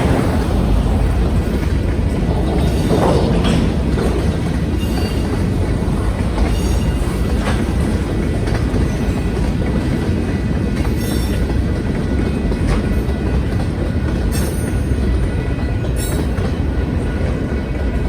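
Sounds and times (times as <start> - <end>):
freight train rumble and clatter: 0.0 - 18.0.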